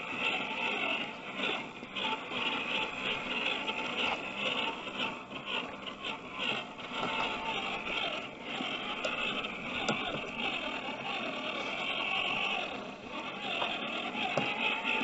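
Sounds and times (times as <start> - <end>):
toy truck motor whining: 0.0 - 15.0.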